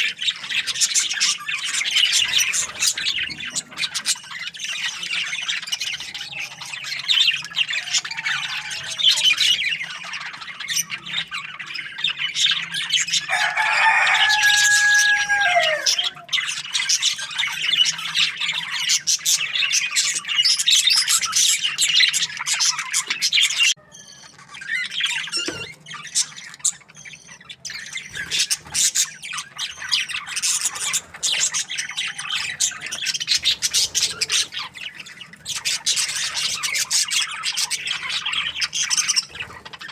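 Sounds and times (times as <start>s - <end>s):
budgies chattering and chirping: 0.0s - 39.9s
long bird call: 13.2s - 16.5s.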